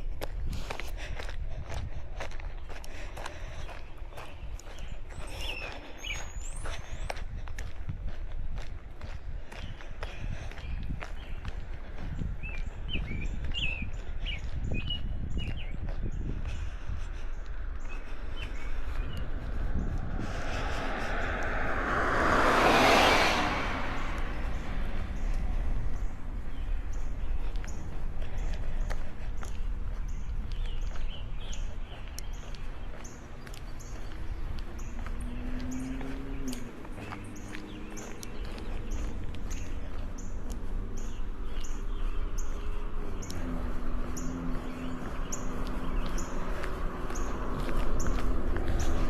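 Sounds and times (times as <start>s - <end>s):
distant traffic: 0.0s - 49.0s
light footsteps: 0.0s - 49.0s
wind on microphone: 0.0s - 49.0s
car passing: 16.4s - 49.0s.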